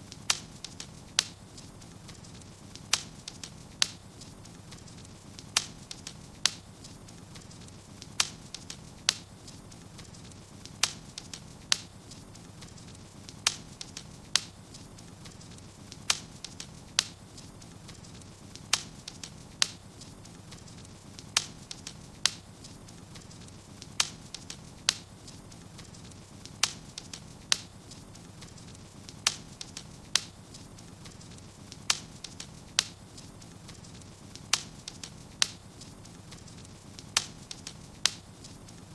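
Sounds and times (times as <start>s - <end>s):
fire low rumble: 0.0s - 38.9s
wood fire crackling and popping: 0.0s - 38.9s.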